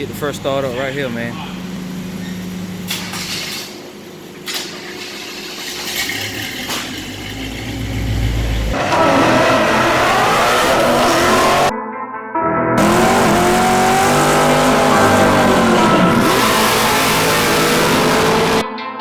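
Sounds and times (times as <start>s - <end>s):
loud pickup engine revving: 7.6s - 11.7s, 12.8s - 18.6s.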